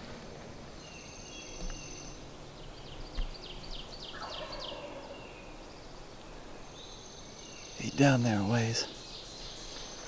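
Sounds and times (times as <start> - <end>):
songbird chirping: 0.7 - 10.0
distant turkey gobbling: 4.2 - 5.1.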